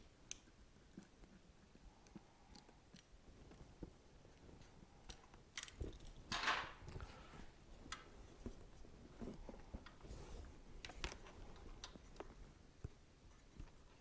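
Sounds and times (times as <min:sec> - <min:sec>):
scrape or rustle: 0:08.2 - 0:11.3.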